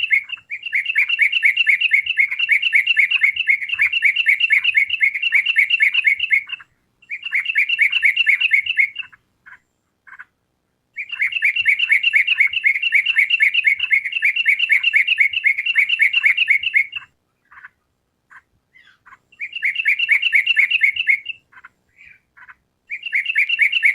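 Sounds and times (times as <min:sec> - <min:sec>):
bulbul chirping in rapid runs: 0:00.0 - 0:09.2.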